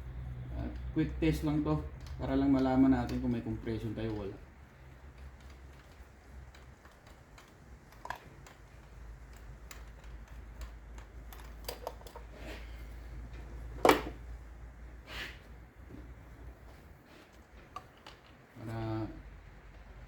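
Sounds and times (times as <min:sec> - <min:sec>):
metal tools clicking and tapping: 0:01.8 - 0:12.3.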